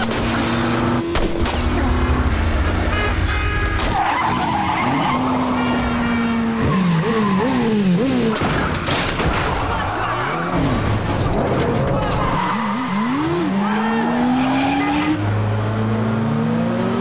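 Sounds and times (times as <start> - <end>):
car engine revving: 4.3 - 8.7.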